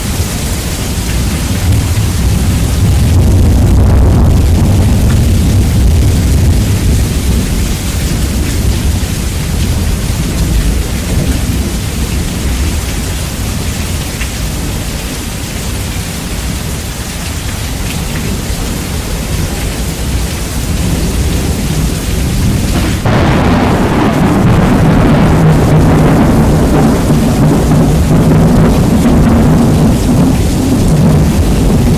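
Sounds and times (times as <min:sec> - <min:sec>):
rumbling thunder: 0:00.0 - 0:14.9, 0:18.2 - 0:31.9
heavy rain: 0:00.0 - 0:31.9.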